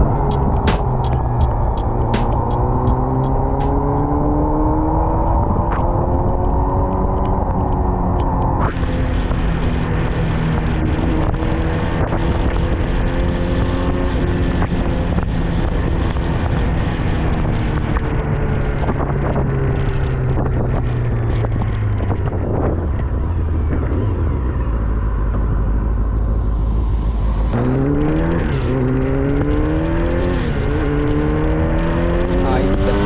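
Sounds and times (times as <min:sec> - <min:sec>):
motorcycle engine running: 0:00.0 - 0:04.0
wind rushing over microphone: 0:00.0 - 0:30.1.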